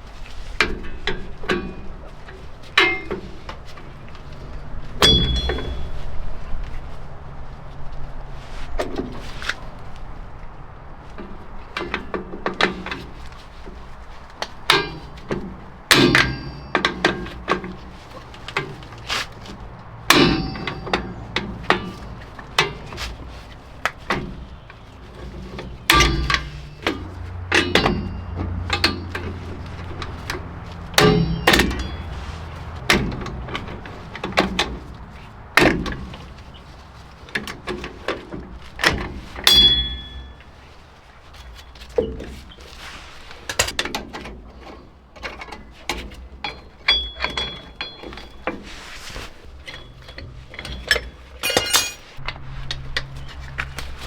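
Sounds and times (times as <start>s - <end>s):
metal tools clanking: 0.6s - 6.2s, 14.5s - 40.8s, 43.5s - 53.5s.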